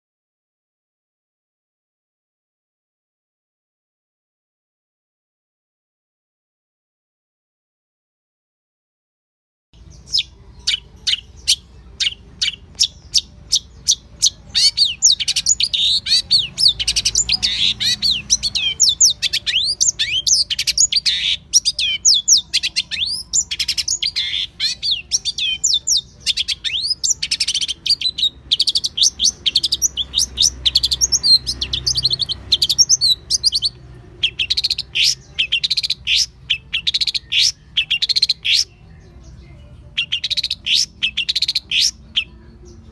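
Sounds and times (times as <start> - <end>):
songbird chirping: 9.8 - 42.9.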